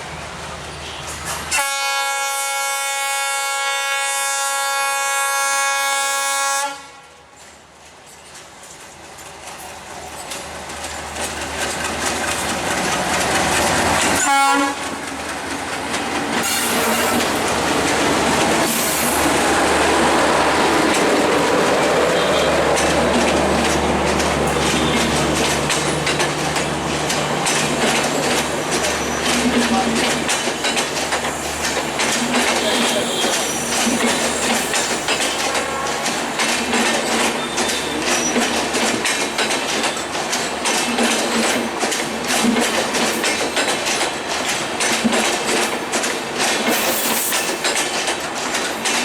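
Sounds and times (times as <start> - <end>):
train rumble and wheel clatter: 0.0 - 49.0
locomotive horn blast: 1.5 - 7.2, 14.2 - 15.0, 32.6 - 33.6, 35.3 - 36.2.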